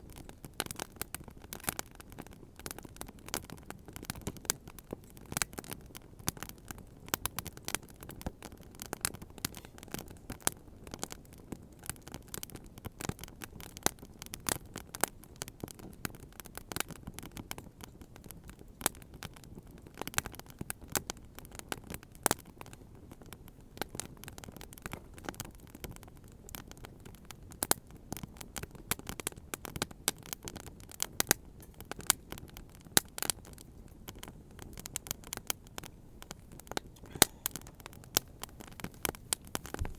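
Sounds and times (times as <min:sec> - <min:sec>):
bonfire crackling and popping: 0:00.0 - 0:39.9
low rush of fire: 0:33.0 - 0:39.9.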